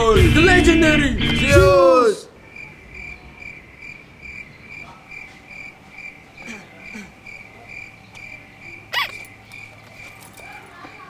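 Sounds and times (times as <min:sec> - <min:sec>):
cricket chirping: 0:02.3 - 0:11.0.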